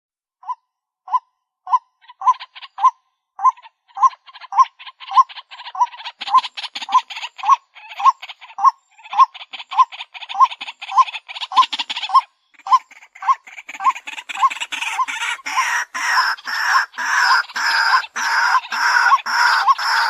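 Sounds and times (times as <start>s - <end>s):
waterhen kwak call: 0.4s - 20.0s
fast bird chattering: 1.1s - 20.0s.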